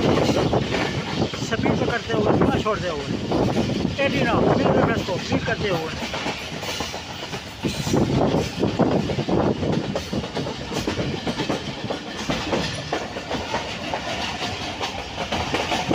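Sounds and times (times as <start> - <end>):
train rumbling: 0.0 - 15.9
wheels clattering over rails: 0.0 - 15.9.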